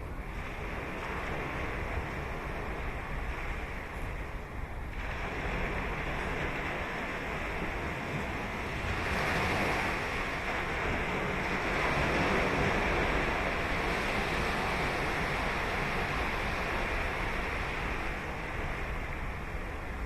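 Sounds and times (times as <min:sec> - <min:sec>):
waves breaking on beach: 0:00.0 - 0:20.0.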